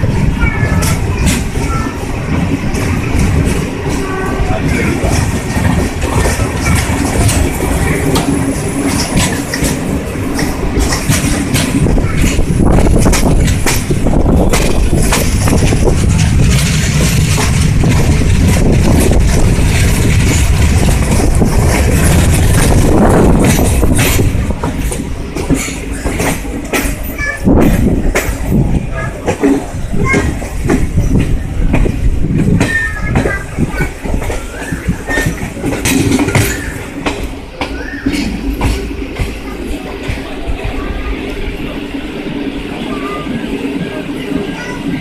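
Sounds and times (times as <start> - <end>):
train running on rails: 0.0 - 45.0.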